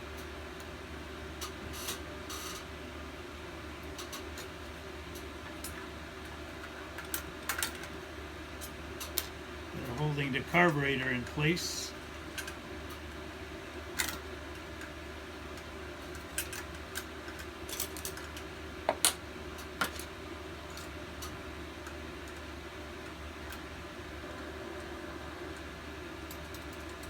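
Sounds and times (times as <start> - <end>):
steady low hum: 9.4 - 12.9.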